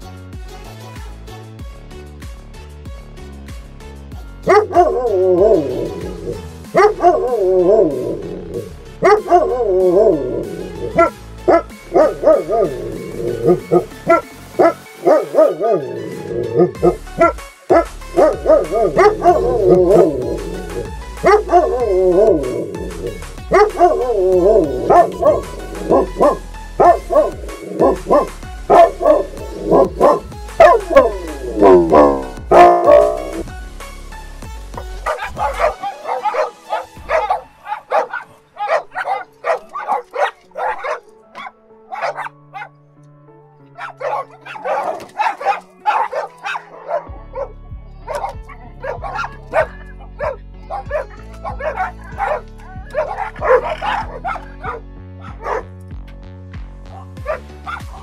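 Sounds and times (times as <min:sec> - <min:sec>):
background music with bass beat: 0:00.0 - 0:40.1, 0:44.1 - 0:58.0
dog barking: 0:04.5 - 0:33.5, 0:35.0 - 0:42.8, 0:43.7 - 0:55.7, 0:56.9 - 0:58.0
dog whining: 0:04.5 - 0:33.5.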